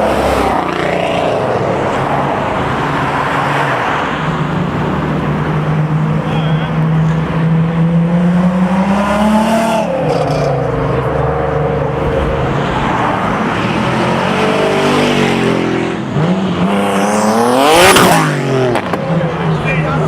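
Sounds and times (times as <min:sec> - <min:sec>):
sports car engine revving: 0:04.6 - 0:20.0.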